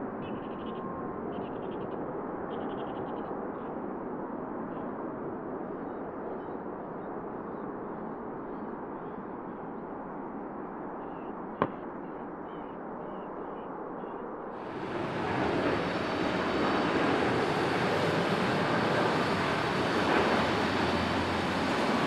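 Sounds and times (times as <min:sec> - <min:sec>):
jet engine noise: 0:00.0 - 0:22.0
distant aircraft noise: 0:10.6 - 0:22.0.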